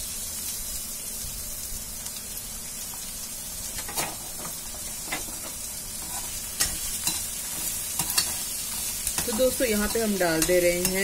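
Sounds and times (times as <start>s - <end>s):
onions sizzling in oil: 0.0s - 11.0s
metal spoon clicking on pan: 8.0s - 11.0s.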